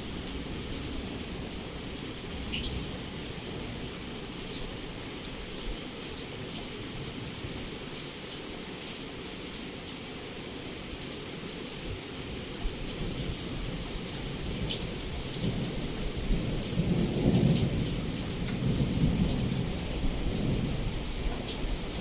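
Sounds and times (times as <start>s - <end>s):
heavy rain against a window: 0.0s - 22.0s
low roll of thunder: 13.0s - 22.0s.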